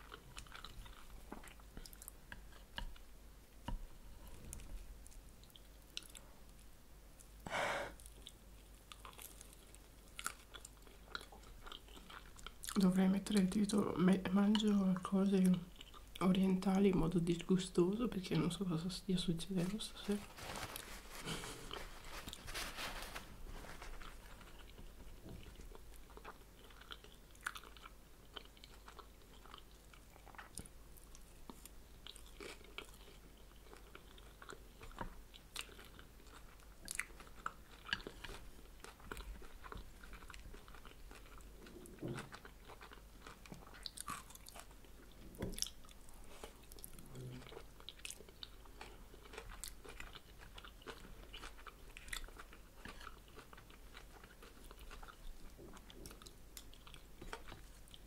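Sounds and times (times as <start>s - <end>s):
chewing and biting crunches: 0.0s - 3.0s, 8.0s - 12.8s, 20.2s - 58.0s.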